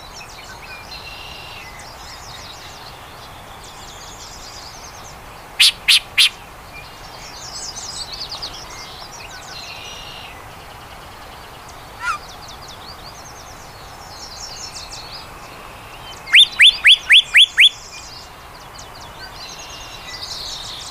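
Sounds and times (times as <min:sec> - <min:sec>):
bird singing harsh notes and whistles: 0:05.6 - 0:06.4, 0:16.2 - 0:18.1
high bird trills: 0:05.6 - 0:06.4, 0:12.0 - 0:12.3, 0:16.3 - 0:17.8.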